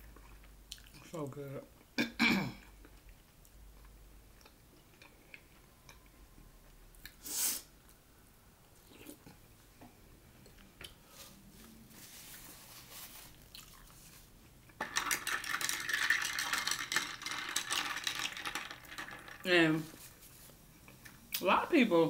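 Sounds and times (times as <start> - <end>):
close chewing and mouth sounds: 0.0 - 2.0, 2.7 - 7.2, 8.7 - 9.5, 10.3 - 12.5, 13.3 - 14.8.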